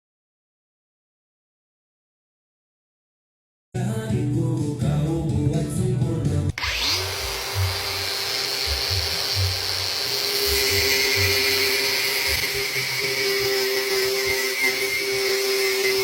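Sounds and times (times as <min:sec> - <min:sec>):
music: 0:03.8 - 0:16.0
power tool motor whine: 0:06.6 - 0:16.0.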